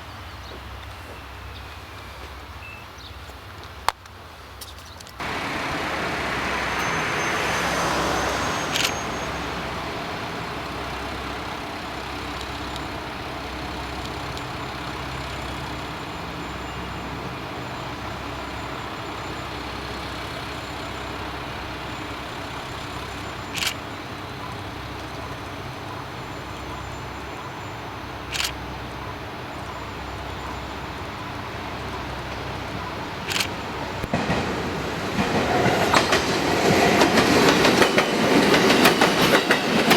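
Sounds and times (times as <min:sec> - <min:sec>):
diesel railcar engine running: 0:00.0 - 0:39.9
sharp clicks: 0:08.6 - 0:09.1, 0:23.5 - 0:23.8, 0:33.2 - 0:34.2.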